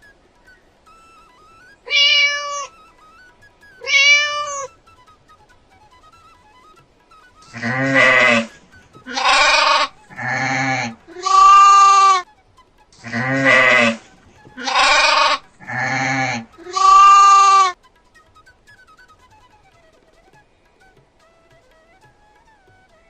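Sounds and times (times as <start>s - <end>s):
goat bleating: 1.8s - 2.8s, 3.8s - 4.8s, 7.4s - 12.3s, 13.0s - 17.8s.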